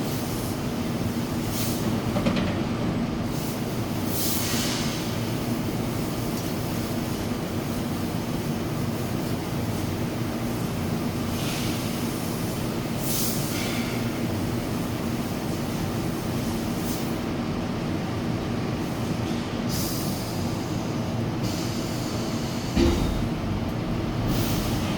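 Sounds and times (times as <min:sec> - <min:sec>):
machinery humming: 0:22.2 - 0:24.9.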